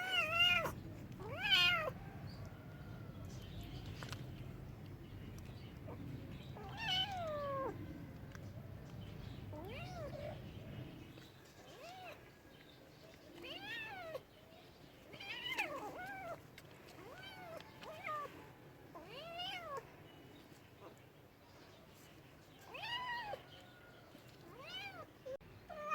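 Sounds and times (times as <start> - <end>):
cat meowing: 0.0 - 2.0, 6.6 - 7.8, 9.5 - 10.4, 22.7 - 23.4, 24.4 - 25.1, 25.7 - 25.9.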